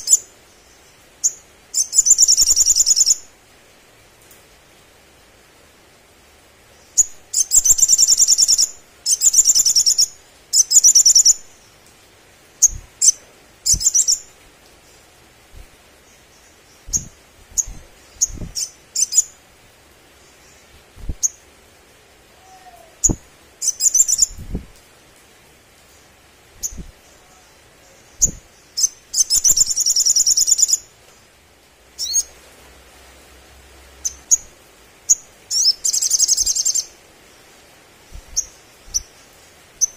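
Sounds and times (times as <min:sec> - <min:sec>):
bird trilling song: 0:00.0 - 0:03.2, 0:06.8 - 0:11.4, 0:12.6 - 0:14.3, 0:16.3 - 0:19.4, 0:22.4 - 0:24.4, 0:27.9 - 0:30.8, 0:32.0 - 0:32.3, 0:35.1 - 0:36.9.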